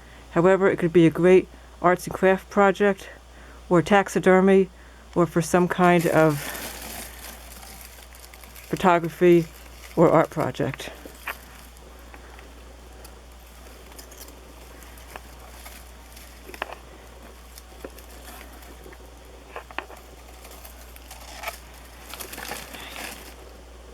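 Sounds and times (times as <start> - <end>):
steady low hum: 0.0 - 23.9
twigs crackling and rustling: 5.2 - 23.9.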